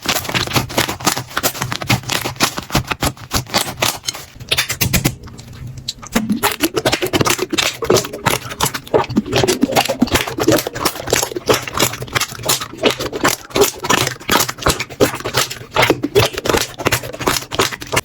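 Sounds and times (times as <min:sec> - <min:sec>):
slime squelching: 0:00.0 - 0:18.0.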